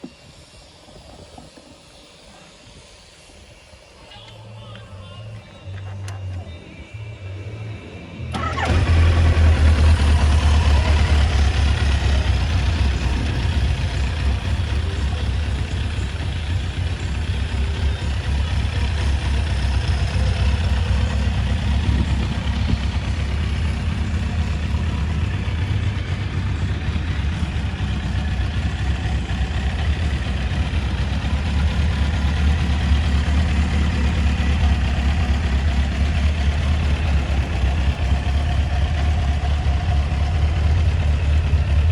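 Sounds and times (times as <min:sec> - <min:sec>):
motorcycle engine idling: 0:08.3 - 0:41.9.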